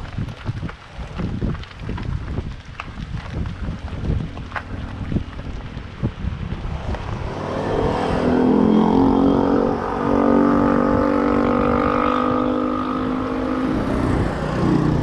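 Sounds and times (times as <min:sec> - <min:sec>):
road and wind rumble: 0:00.0 - 0:15.0
vehicle engine speeding up: 0:04.0 - 0:15.0.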